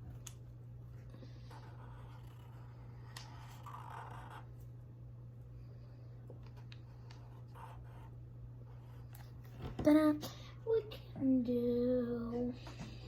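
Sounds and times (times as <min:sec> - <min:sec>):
pen scratching on paper: 0:01.4 - 0:04.6, 0:06.8 - 0:08.1.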